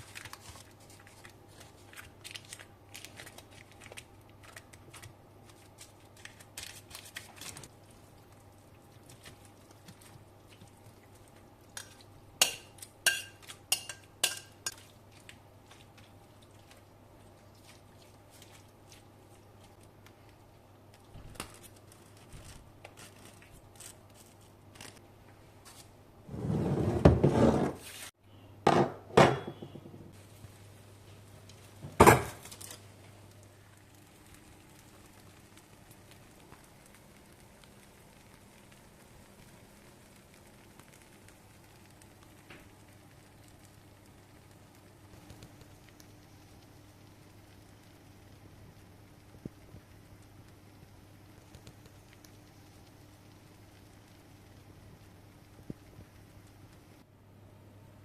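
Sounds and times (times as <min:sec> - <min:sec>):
faint steady hum: 0:00.0 - 0:58.0
dishes and cutlery clinking: 0:11.8 - 0:14.9
dish scraping: 0:26.3 - 0:27.9.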